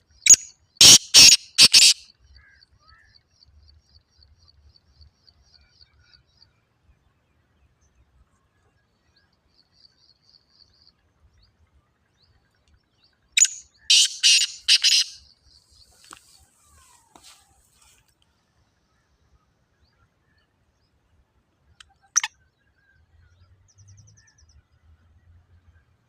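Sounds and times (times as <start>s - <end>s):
small bird high chirping: 0.2s - 2.0s, 13.4s - 15.2s, 22.1s - 22.3s
francolin harsh call: 0.8s - 2.0s, 13.4s - 15.2s.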